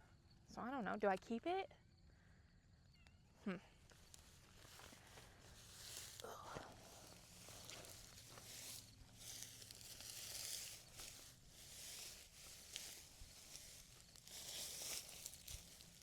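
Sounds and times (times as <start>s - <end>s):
hands rustling through dry straw: 4.0s - 16.0s.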